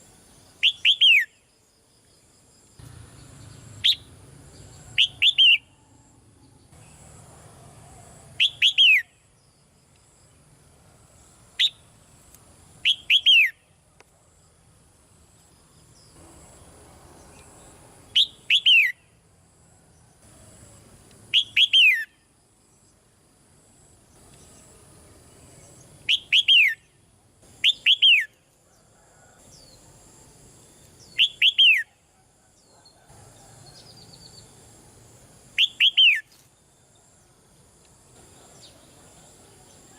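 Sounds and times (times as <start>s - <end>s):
bird calling: 4.8s - 5.8s, 8.4s - 9.1s, 12.8s - 13.6s, 21.3s - 22.1s, 26.1s - 26.8s, 27.6s - 28.4s, 35.6s - 36.4s.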